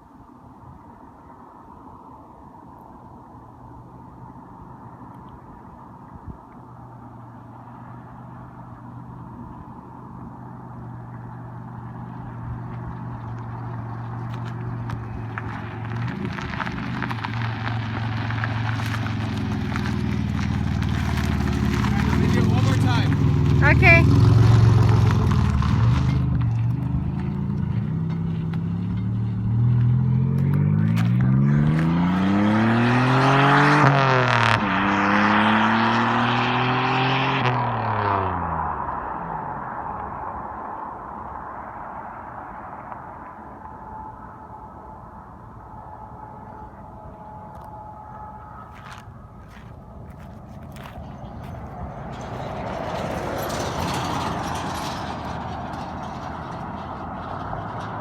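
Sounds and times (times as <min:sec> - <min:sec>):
car engine idling: 0:07.0 - 0:25.7
car engine accelerating hard: 0:10.8 - 0:40.9, 0:49.6 - 0:58.0.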